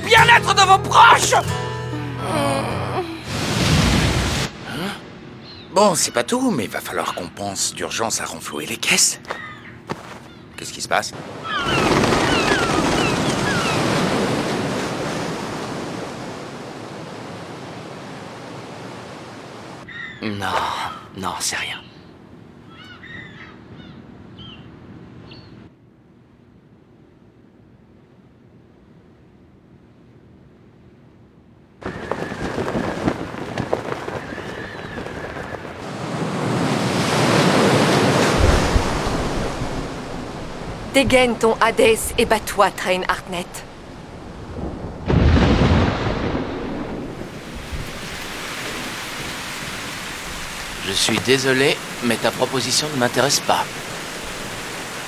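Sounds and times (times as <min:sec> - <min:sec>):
rushing noise: 0:31.8 - 0:41.0.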